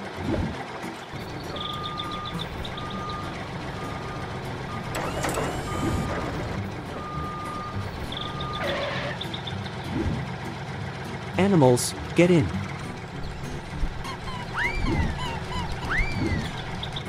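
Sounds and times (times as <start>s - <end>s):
tractor engine rumble: 0.0s - 17.0s
reversing alarm beeping: 1.2s - 9.2s, 14.1s - 16.9s.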